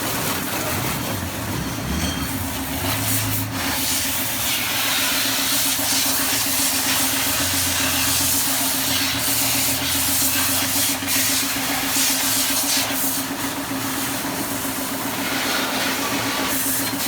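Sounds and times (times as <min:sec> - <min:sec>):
pressure washer jet hissing: 0:02.3 - 0:17.0.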